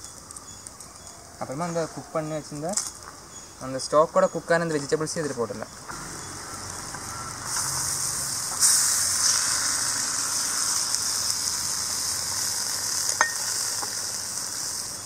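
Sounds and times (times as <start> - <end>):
vegetables sizzling in a pan: 6.0 - 15.0.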